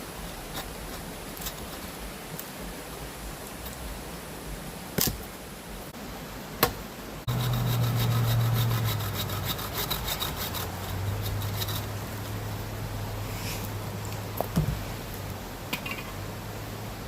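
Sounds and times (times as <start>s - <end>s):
steady low hum: 7.2s - 17.0s
saw cutting firewood: 7.3s - 12.4s.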